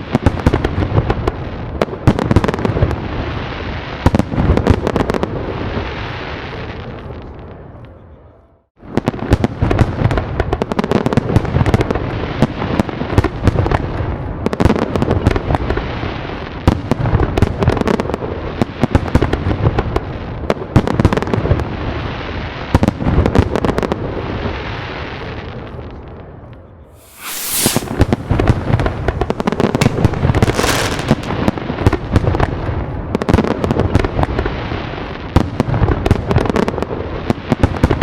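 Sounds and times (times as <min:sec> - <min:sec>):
fireworks crackling and banging: 0:27.0 - 0:32.9.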